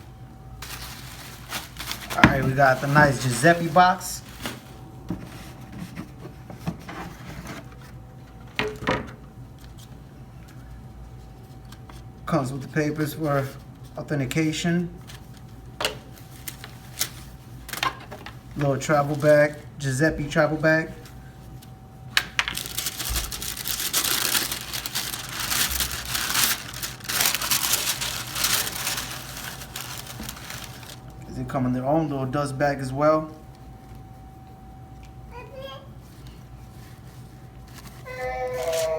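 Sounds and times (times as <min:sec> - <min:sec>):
packaging crinkling and rustling: 0:00.6 - 0:06.0, 0:15.0 - 0:19.7, 0:21.5 - 0:31.2, 0:37.6 - 0:38.9
cardboard box rustling and knocks: 0:02.0 - 0:02.6.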